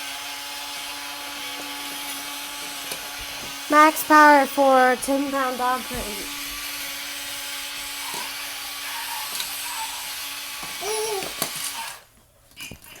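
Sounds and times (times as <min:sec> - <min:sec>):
short vocal sound: 0:03.7 - 0:06.3.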